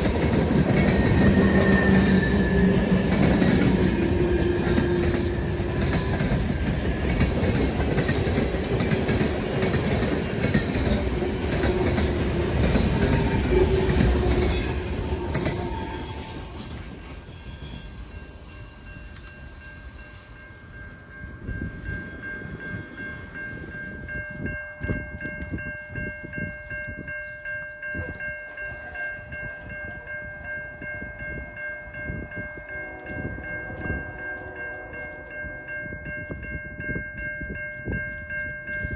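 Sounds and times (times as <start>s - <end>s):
train wheels clattering and squealing: 0.0s - 20.7s
high ringing tones: 8.3s - 27.9s.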